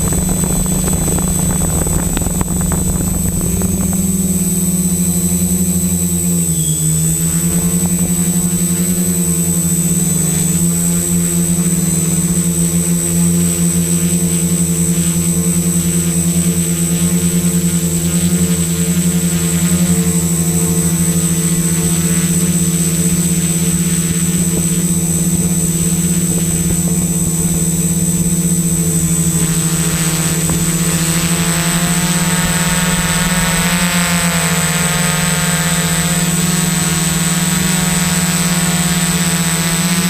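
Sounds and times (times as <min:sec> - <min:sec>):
high propeller whine: 0:00.0 - 0:40.0
quadcopter motors humming: 0:00.0 - 0:40.0.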